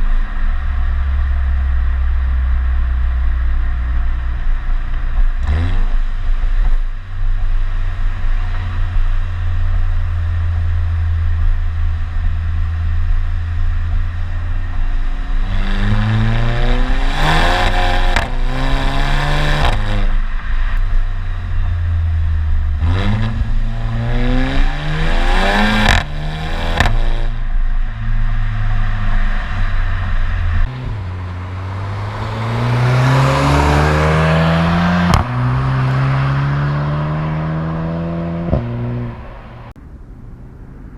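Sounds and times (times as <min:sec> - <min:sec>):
car engine exhaust revving: 0:00.0 - 0:40.9
exhaust pops: 0:13.7 - 0:28.9, 0:35.0 - 0:36.0, 0:38.4 - 0:40.5.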